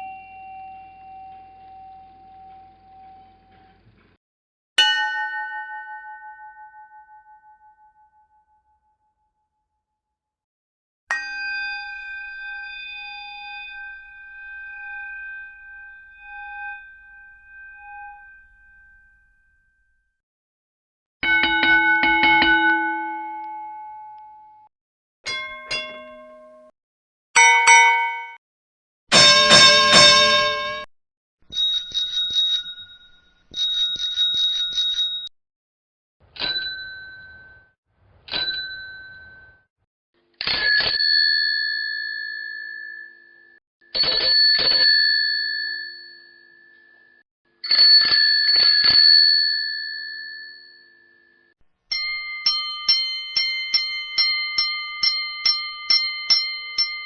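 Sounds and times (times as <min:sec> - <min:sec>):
metal bell ringing: 0:00.0 - 0:03.5, 0:04.8 - 0:08.0, 0:21.2 - 0:24.4, 0:25.3 - 0:26.6, 0:27.4 - 0:28.4, 0:29.1 - 0:30.9, 0:31.5 - 0:35.3, 0:51.9 - 0:57.0.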